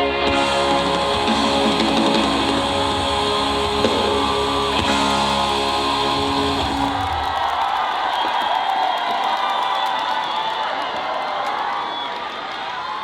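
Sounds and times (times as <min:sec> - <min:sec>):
live band playing pop: 0:00.0 - 0:07.4.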